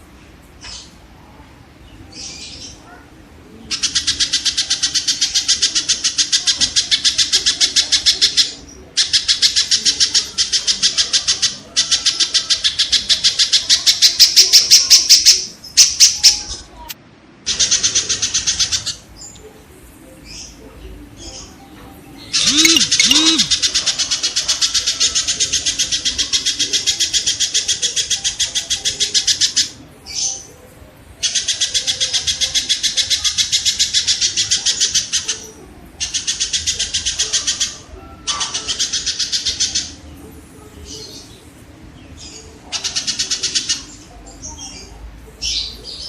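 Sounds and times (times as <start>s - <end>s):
quieter bird calls: 20.0s - 30.6s
kingfisher rapid rough calls: 22.4s - 23.7s.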